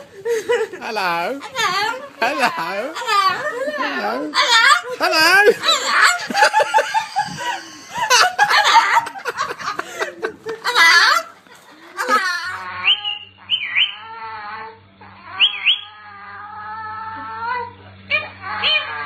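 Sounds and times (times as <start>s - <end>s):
low electrical hum: 0.0s - 19.0s
parrot squawking: 12.0s - 14.2s, 15.2s - 16.1s
parrot whining calls: 12.0s - 19.0s.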